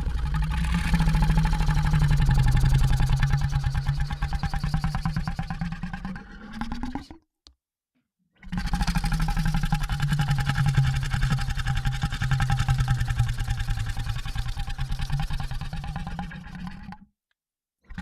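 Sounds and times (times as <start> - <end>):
monster low rattling growl: 0.0 - 7.0, 8.5 - 16.9.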